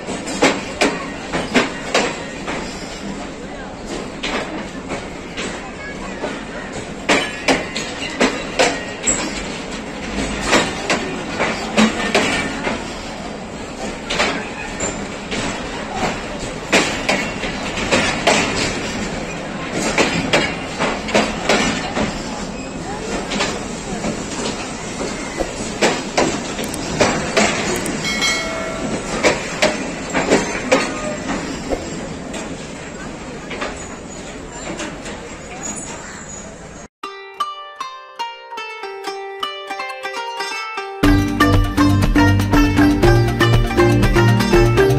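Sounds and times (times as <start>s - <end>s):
train wheels clacking over joints: 0.0s - 36.6s
train rolling rumble: 0.0s - 36.9s
wheel squeal: 6.6s - 9.6s, 14.1s - 15.2s, 24.7s - 25.7s, 29.1s - 32.1s, 33.6s - 36.9s.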